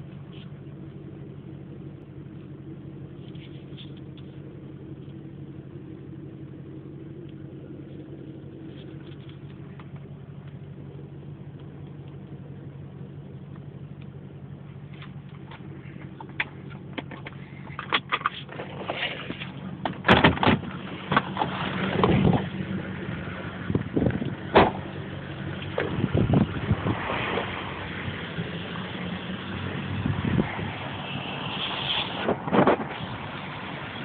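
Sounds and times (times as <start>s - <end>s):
car engine idling inside cabin: 0.0s - 34.0s
sharp clicks and knocks: 15.0s - 22.5s.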